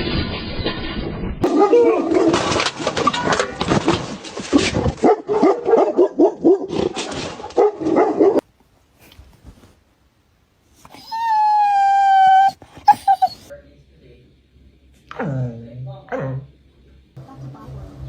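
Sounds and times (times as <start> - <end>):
dog barking and yipping: 1.4 - 2.5, 5.0 - 6.8, 7.5 - 8.4, 10.9 - 13.5.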